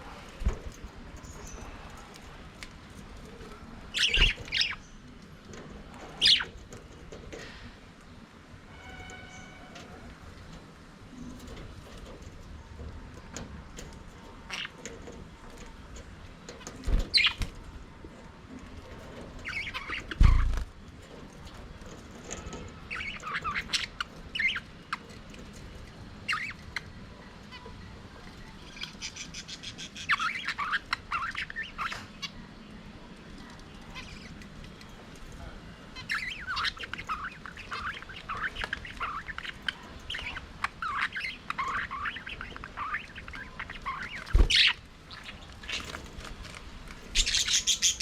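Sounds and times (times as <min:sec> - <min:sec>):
budgerigars chirping: 0:06.2 - 0:06.5, 0:22.9 - 0:25.0, 0:28.7 - 0:32.4, 0:36.0 - 0:46.0, 0:47.1 - 0:48.0.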